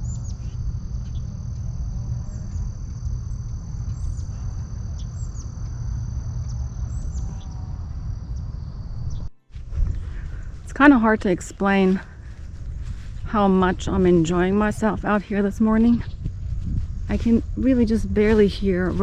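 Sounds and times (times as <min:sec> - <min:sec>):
insects trilling: 0:00.0 - 0:19.0
steady low rumble: 0:00.0 - 0:19.0.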